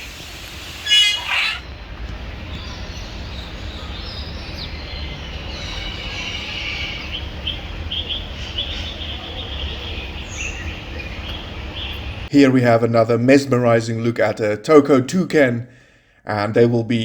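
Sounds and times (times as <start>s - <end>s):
birds chirping: 0.0s - 12.4s
low steady rumble: 0.0s - 12.6s.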